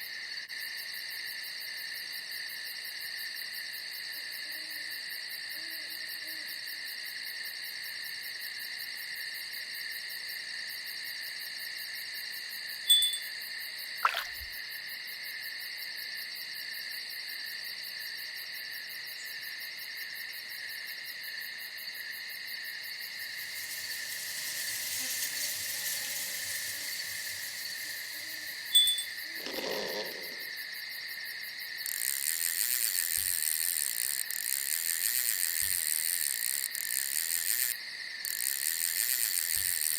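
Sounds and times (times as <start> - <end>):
crickets chirring: 0.0 - 39.9
hiss: 22.9 - 30.5
faint owl hoots: 23.6 - 30.6.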